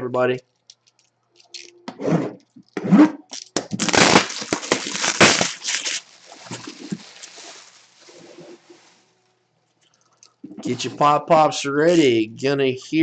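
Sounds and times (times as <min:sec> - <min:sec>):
plastic shrink-wrap tearing and crinkling: 0:03.3 - 0:09.0.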